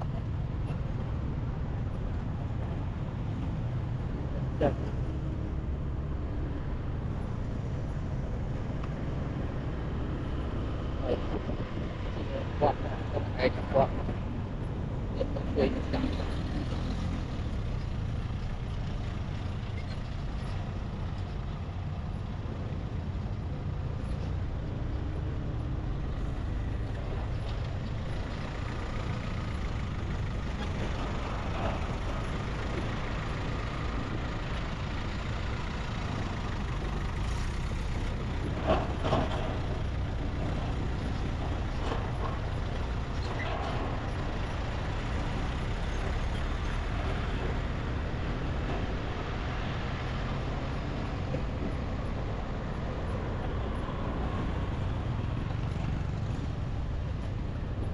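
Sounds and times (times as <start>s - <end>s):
passing traffic: 0.0s - 57.9s
road noise: 0.0s - 57.9s
motorbike engine rumble: 53.8s - 57.9s.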